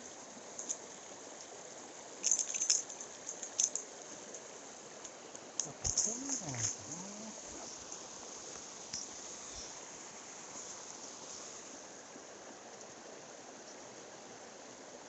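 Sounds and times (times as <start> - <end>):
stream water running over rocks: 0.0 - 15.0.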